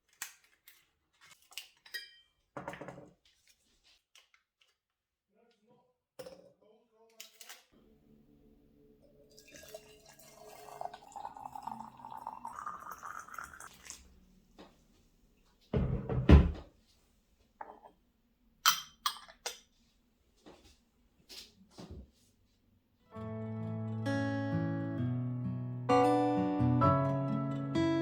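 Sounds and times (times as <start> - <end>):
water pouring into a pot: 9.1 - 14.1
heavy thunk: 15.8 - 16.7.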